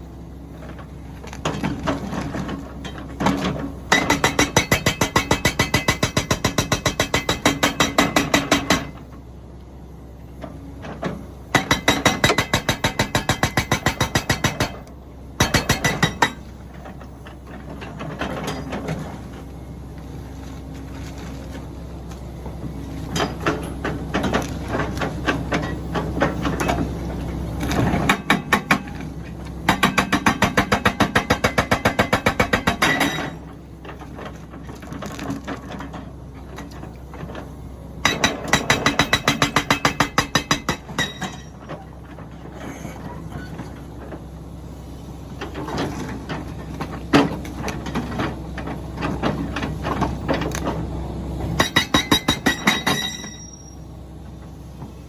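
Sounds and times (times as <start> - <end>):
diesel engine running: 0.0 - 55.0
hydraulic breaker hammering stone: 3.3 - 9.0, 11.5 - 14.8, 15.4 - 16.5, 27.7 - 33.4, 38.0 - 41.8, 51.6 - 53.6.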